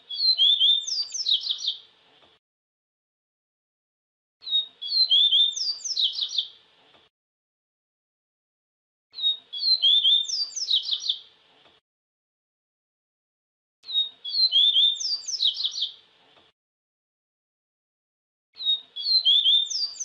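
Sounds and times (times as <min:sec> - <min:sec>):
bird high twittering song: 0:00.0 - 0:01.9, 0:04.4 - 0:06.6, 0:09.1 - 0:11.3, 0:13.8 - 0:16.0, 0:18.6 - 0:20.0.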